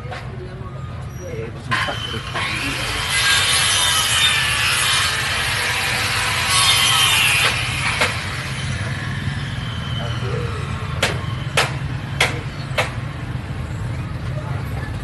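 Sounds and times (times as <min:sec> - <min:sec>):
sharp knocks: 0:11.0 - 0:13.0.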